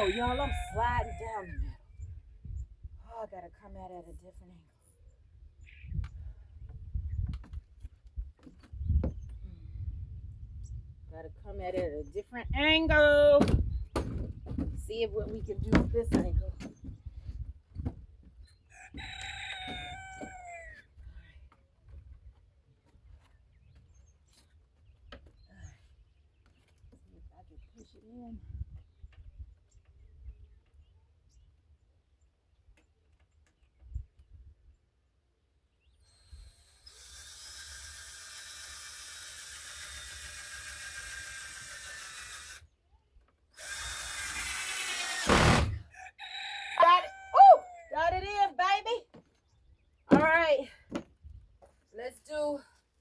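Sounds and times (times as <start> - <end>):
rooster crowing: 0.0 - 1.4, 18.7 - 20.8, 45.9 - 48.0
power drill driving screw into wood: 36.0 - 42.7, 43.5 - 45.9.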